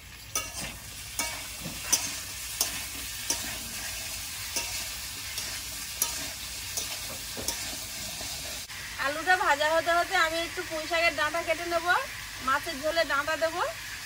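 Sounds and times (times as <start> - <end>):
potatoes sizzling in oil: 0.0 - 14.0
metal spatula clinking against pan: 0.3 - 7.9.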